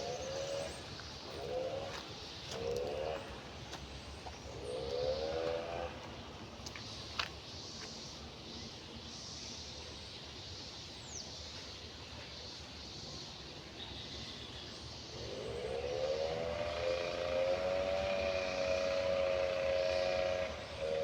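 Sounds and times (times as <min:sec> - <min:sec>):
steady background hiss: 0:00.0 - 0:21.0
passing vehicle engine: 0:04.4 - 0:06.2, 0:15.1 - 0:21.0.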